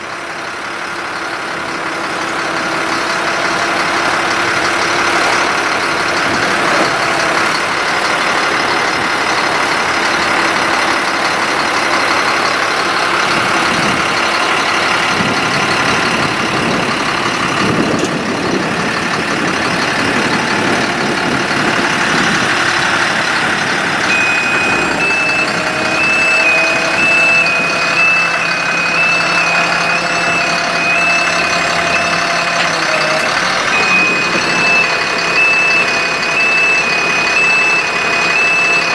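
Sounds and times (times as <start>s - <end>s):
diesel truck engine running: 0.0s - 38.9s
rapid electronic alarm beeping: 24.1s - 38.9s.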